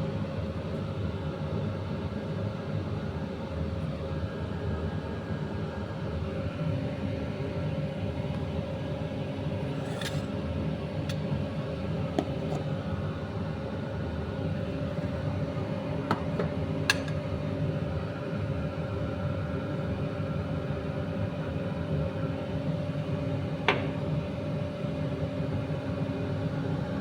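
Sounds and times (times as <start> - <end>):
low machine hum: 5.8 - 27.0.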